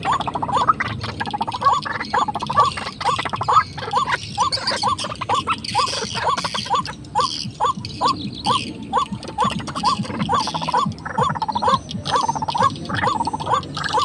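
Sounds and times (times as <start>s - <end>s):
bird calling: 0.0s - 14.0s
faint high chirps: 0.0s - 14.0s.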